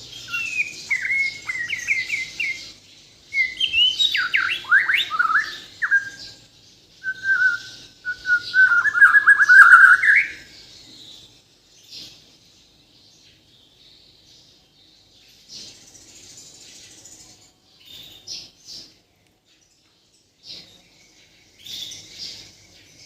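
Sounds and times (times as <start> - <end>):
songbird singing whistled phrases: 0.0 - 11.4.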